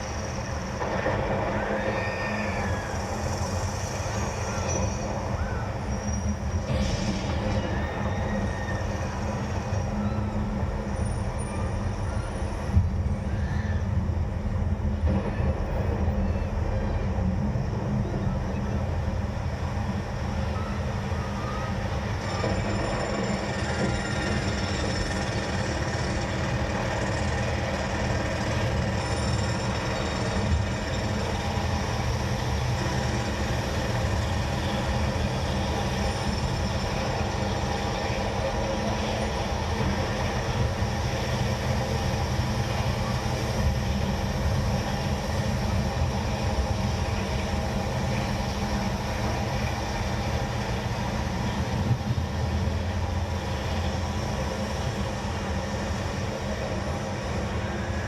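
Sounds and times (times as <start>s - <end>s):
mechanical rumble: 0.0s - 58.0s.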